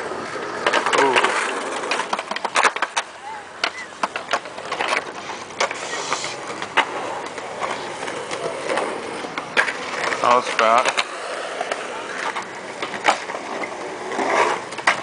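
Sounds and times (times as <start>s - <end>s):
boards and bikes clacking: 0.0s - 15.0s
wheels rolling on concrete: 0.0s - 15.0s.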